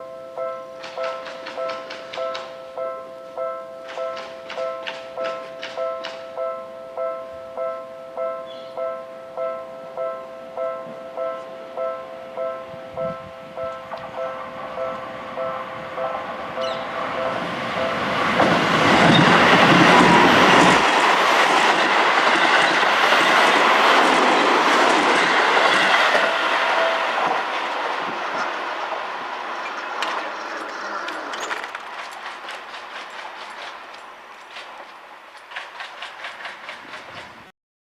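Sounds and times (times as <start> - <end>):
crossing warning bell ringing: 0.0 - 34.6
electric train passing: 0.0 - 37.5
wheels clattering over rail joints: 0.8 - 2.5, 16.5 - 37.5.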